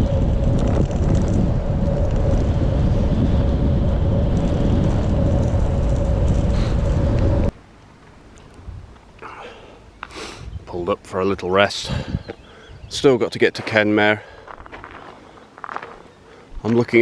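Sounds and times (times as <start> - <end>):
wind buffeting microphone: 0.0 - 7.6, 11.8 - 13.1
bicycle tyre hum on road: 0.0 - 9.0.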